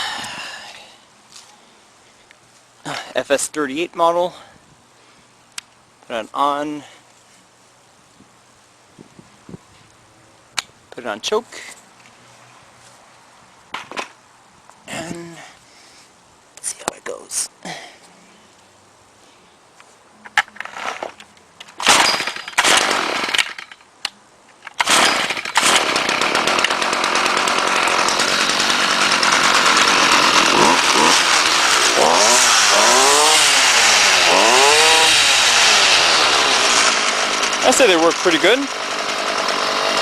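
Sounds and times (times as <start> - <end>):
string trimmer engine running: 24.8 - 40.0.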